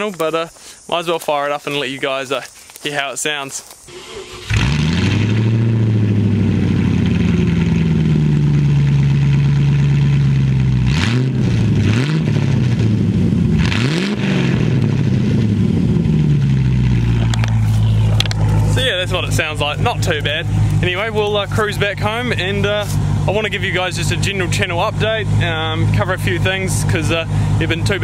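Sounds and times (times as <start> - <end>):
engine starting and idling: 3.9 - 10.8, 16.5 - 28.0
engine revving: 3.9 - 28.0.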